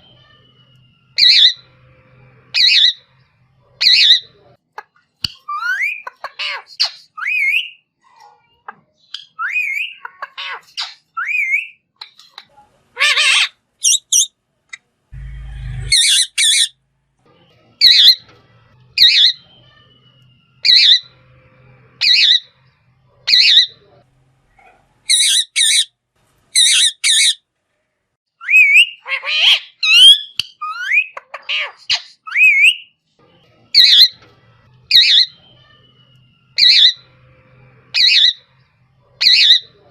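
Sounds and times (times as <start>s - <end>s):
parrot squawking and whistling: 1.2s - 1.7s, 2.5s - 3.1s, 15.2s - 16.7s, 20.6s - 21.2s, 22.0s - 22.5s, 25.1s - 25.9s, 26.6s - 27.4s, 28.4s - 32.9s, 34.9s - 35.4s, 36.6s - 37.1s, 37.9s - 38.5s, 39.2s - 39.7s.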